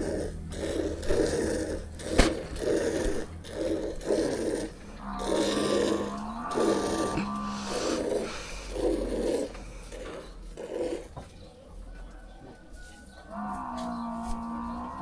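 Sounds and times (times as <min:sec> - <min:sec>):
water buffalo lowing: 0:00.0 - 0:11.5.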